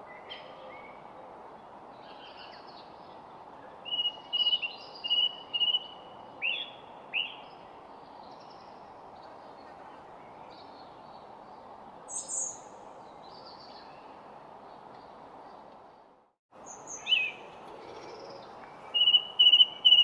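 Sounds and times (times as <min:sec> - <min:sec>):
birds singing and calling: 0:16.6 - 0:20.0.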